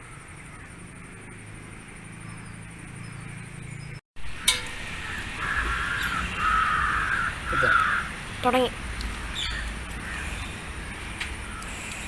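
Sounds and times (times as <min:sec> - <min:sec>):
steady low hum: 0:04.2 - 0:12.0
sharp click: 0:04.4 - 0:05.0
crows cawing: 0:05.0 - 0:10.7.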